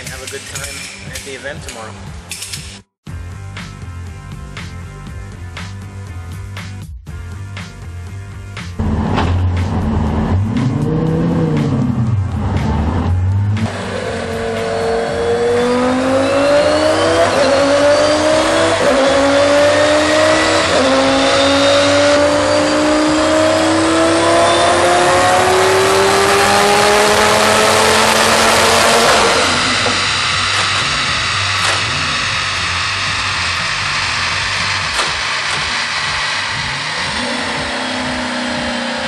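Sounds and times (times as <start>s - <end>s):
car engine revving: 8.6s - 39.0s
dyno rollers: 28.9s - 39.0s.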